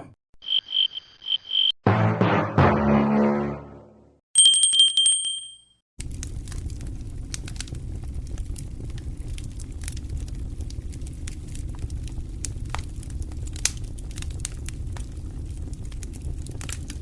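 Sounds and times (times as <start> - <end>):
bicycle bell ringing: 4.4 - 5.8
low rumbling with crackles: 6.0 - 17.0.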